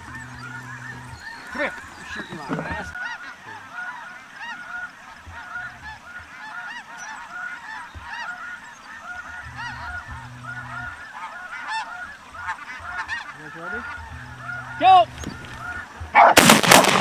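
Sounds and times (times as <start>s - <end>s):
geese yelping calls: 0.0s - 17.0s.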